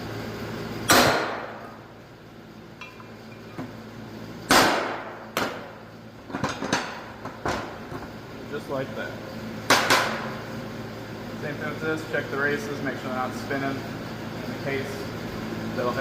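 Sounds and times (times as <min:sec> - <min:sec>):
hammer striking steel punch: 0:00.9 - 0:01.7, 0:04.5 - 0:05.8, 0:09.7 - 0:10.2.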